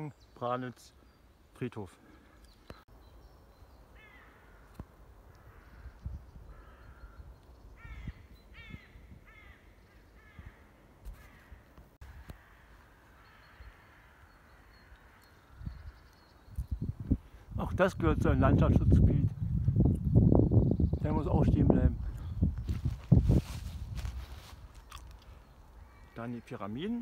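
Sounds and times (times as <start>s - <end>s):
harsh crow-like bird calls: 3.9s - 16.5s, 25.4s - 27.0s.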